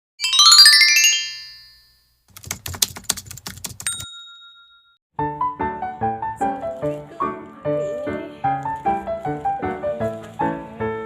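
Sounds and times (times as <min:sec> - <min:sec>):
chime: 0:00.2 - 0:02.1
keyboard typing clicks: 0:02.3 - 0:04.0.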